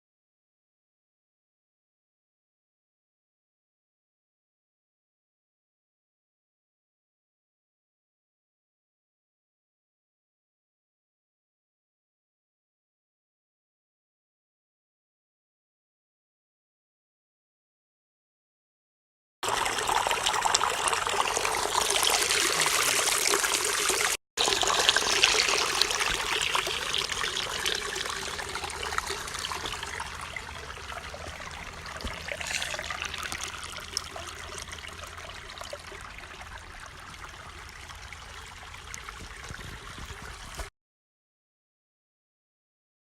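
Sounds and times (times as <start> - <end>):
stream trickling and flowing: 19.4 - 40.7.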